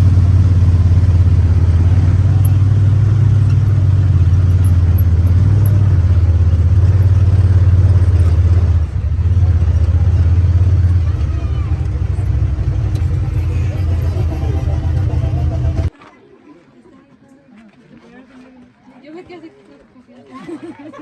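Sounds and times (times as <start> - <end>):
engine low rumble: 0.0 - 15.9.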